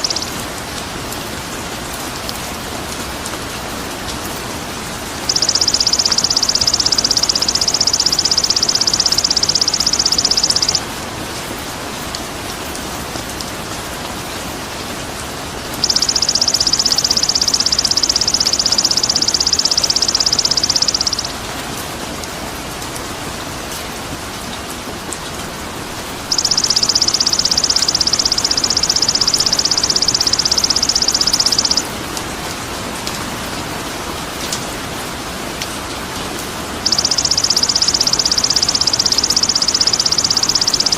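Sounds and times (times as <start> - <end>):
high rapid buzzing trill: 5.2 - 10.8, 15.8 - 21.3, 26.3 - 31.8, 36.8 - 40.9.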